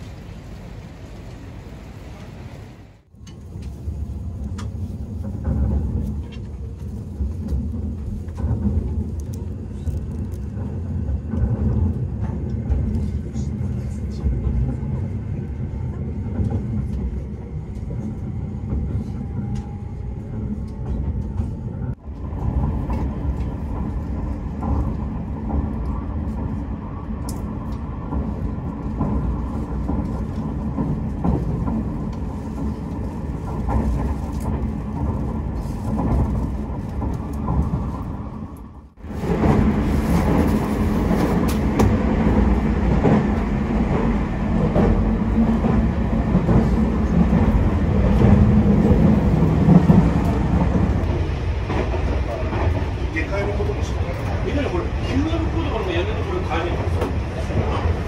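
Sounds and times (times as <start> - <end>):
train rumbling at speed: 0.0 - 58.0.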